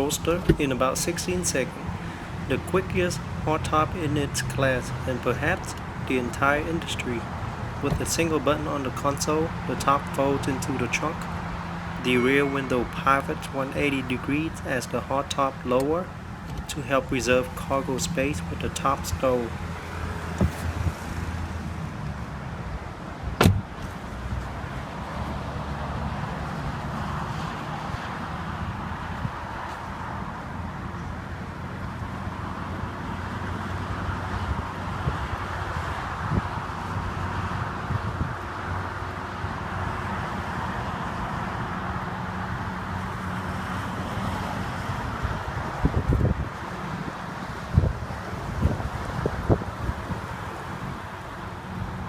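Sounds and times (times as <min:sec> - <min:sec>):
retractable car roof humming: 0:00.0 - 0:12.0.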